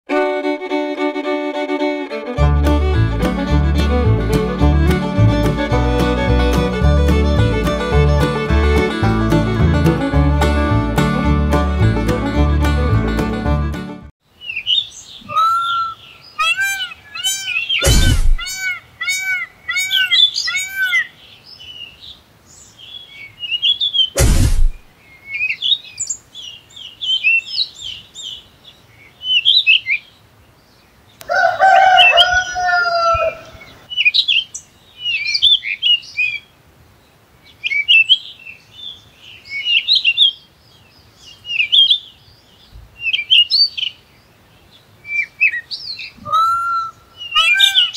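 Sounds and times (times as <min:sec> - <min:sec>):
birds chirping and twittering: 0:14.3 - 0:47.9
loud bursts of noise: 0:17.8 - 0:18.5, 0:24.2 - 0:24.8.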